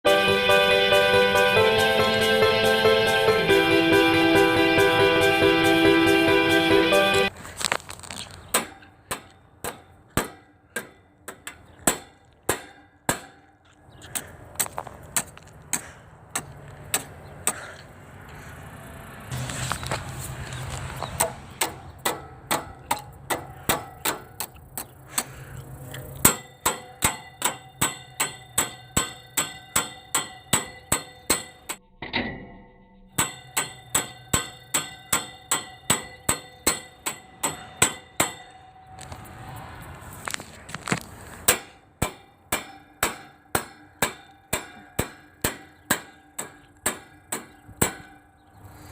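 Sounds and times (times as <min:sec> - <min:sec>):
hammer striking metal casing: 0:08.5 - 0:13.6, 0:21.2 - 0:24.9, 0:26.2 - 0:32.5, 0:33.1 - 0:38.9, 0:41.5 - 0:48.5.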